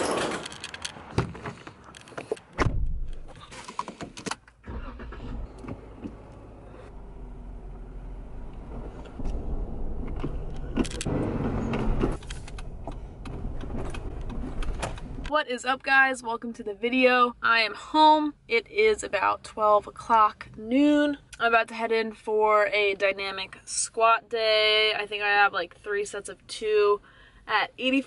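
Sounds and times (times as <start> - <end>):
engine rumbling: 0.0 - 15.3.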